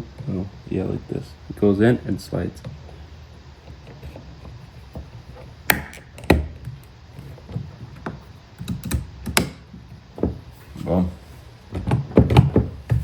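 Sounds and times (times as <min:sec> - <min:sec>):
plastic clicks and knocks: 0:11.7 - 0:13.0.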